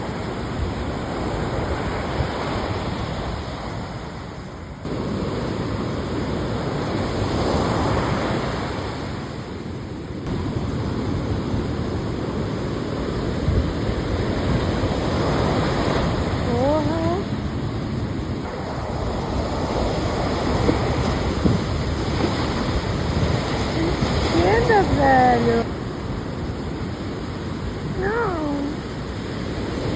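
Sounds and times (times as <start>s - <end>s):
ocean surf breaking: 0.0s - 29.9s
wind on microphone: 10.2s - 29.9s.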